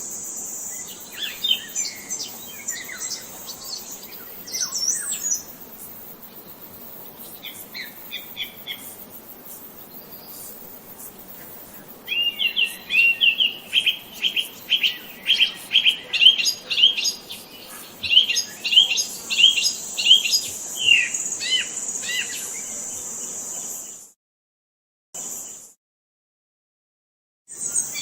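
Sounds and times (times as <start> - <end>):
songbird chirping: 0.1 - 5.6, 9.8 - 23.8.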